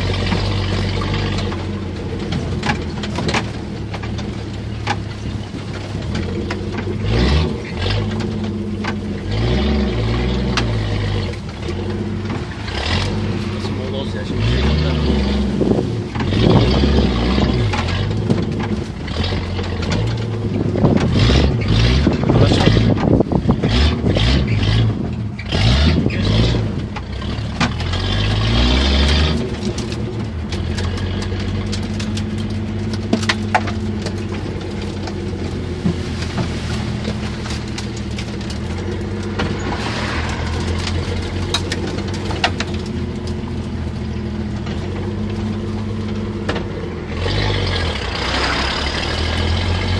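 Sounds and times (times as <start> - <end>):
knocks and rattles: 0.0 - 49.9
off-road engine revving: 0.0 - 49.9.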